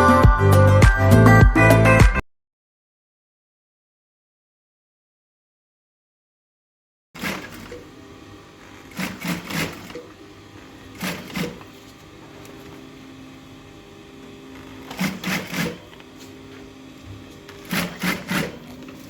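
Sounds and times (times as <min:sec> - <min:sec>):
sewing machine stitching: 0:07.2 - 0:08.0, 0:08.6 - 0:12.7, 0:14.5 - 0:16.2, 0:17.2 - 0:19.0
motor hum: 0:07.2 - 0:19.0.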